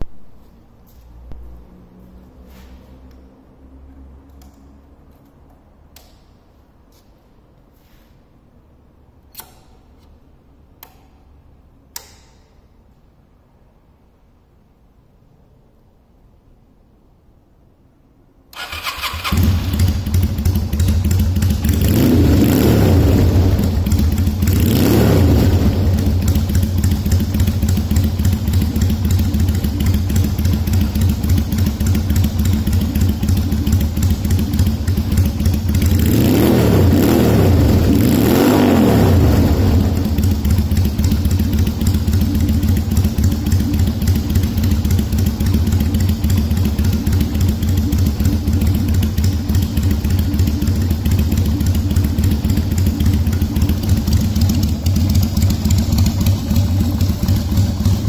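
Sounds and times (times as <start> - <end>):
motorcycle engine starting and idling: 18.5 - 58.0
motorcycle engine revving: 18.6 - 58.0.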